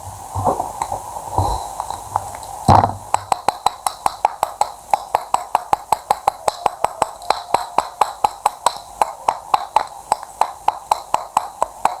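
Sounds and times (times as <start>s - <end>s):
loud knock: 2.7s - 3.5s
rapid sharp ringing taps: 3.1s - 12.0s.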